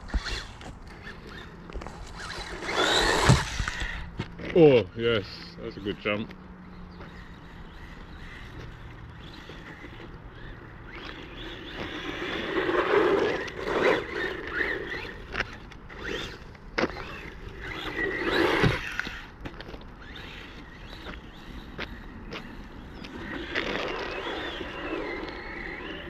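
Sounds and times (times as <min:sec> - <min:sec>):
electric motor whine: 0:00.0 - 0:04.4, 0:06.8 - 0:26.0
tyres and chassis scraping rattle: 0:00.0 - 0:05.4, 0:08.3 - 0:21.0.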